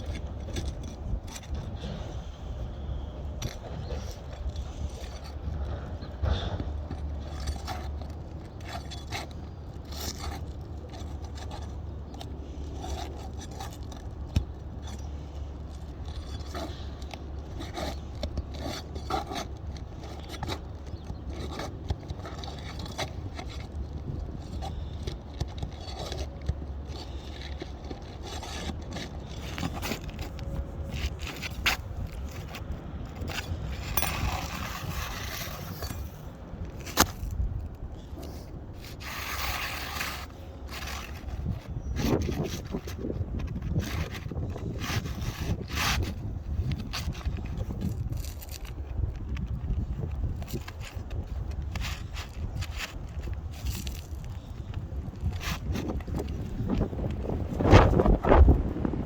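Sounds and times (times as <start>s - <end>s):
roof shingles scraping: 0.0s - 59.0s.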